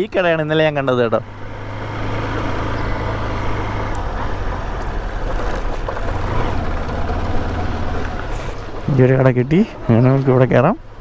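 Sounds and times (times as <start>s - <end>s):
motorcycle engine running: 1.1s - 9.8s.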